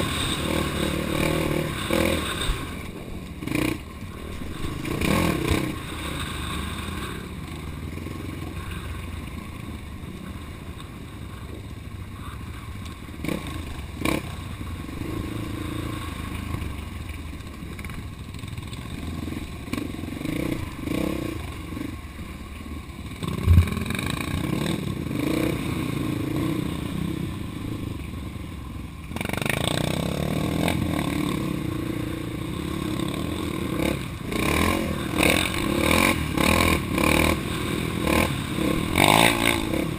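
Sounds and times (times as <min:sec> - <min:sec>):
off-road vehicle engine: 0:00.0 - 0:39.9
sharp knock: 0:23.2 - 0:24.0.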